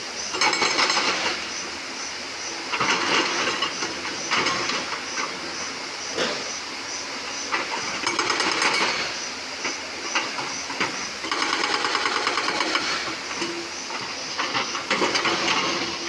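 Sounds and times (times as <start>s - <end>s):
hydraulic rock breaker hammering: 0.4s - 1.4s, 7.6s - 9.2s, 10.2s - 16.0s.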